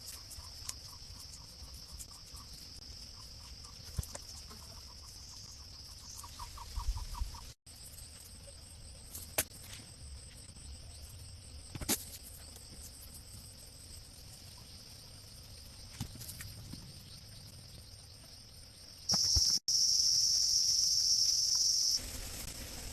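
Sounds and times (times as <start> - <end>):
insect chirring: 0.0 - 9.3, 10.4 - 22.4.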